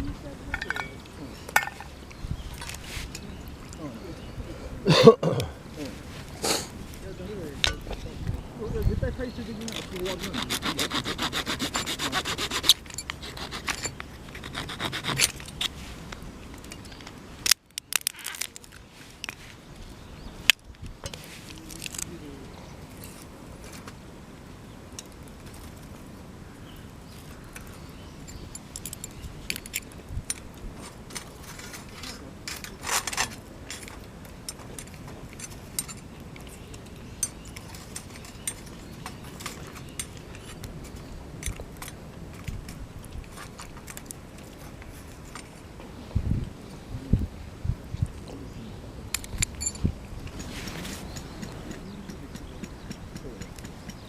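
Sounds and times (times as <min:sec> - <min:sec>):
faint steady background noise: 0:00.0 - 0:54.0
camp gear clinking and scraping: 0:00.4 - 0:04.2, 0:04.9 - 0:08.2, 0:09.5 - 0:19.7, 0:21.0 - 0:22.1, 0:22.9 - 0:24.0, 0:27.9 - 0:45.8, 0:49.1 - 0:54.0.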